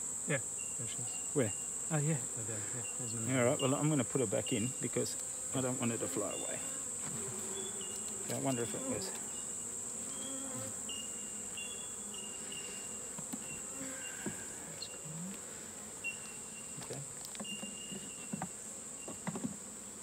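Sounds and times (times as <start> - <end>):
high-pitched insect drone: 0.0 - 6.8, 7.4 - 15.4, 16.0 - 19.6
bees buzzing: 0.0 - 20.0
knocks and clicks on hive: 16.8 - 19.6.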